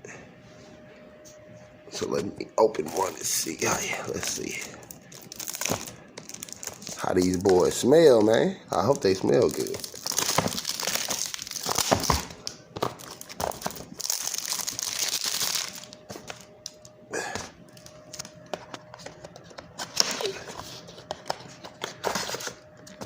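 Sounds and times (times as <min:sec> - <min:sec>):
plastic wrapping crinkling and tearing: 0:02.9 - 0:16.9.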